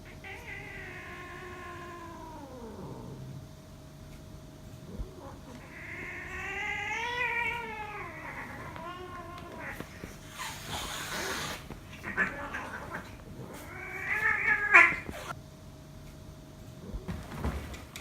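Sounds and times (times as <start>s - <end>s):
cats yowling: 0.0s - 3.2s, 4.9s - 15.4s.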